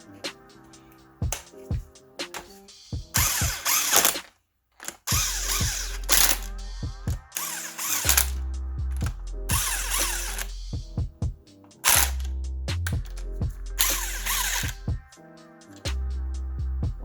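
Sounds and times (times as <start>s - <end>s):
ratcheting tool: 3.2s - 6.6s, 7.3s - 8.4s, 9.0s - 10.8s, 11.8s - 14.9s
beat track with deep bass: 5.2s - 7.4s, 8.1s - 11.6s, 12.2s - 14.0s, 14.6s - 17.0s.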